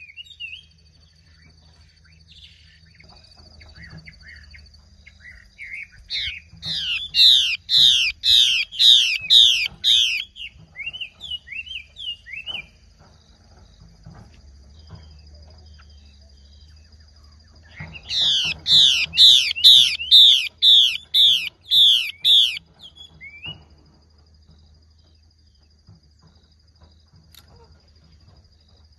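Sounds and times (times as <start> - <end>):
bird whistling: 5.6 - 12.8, 17.7 - 23.6.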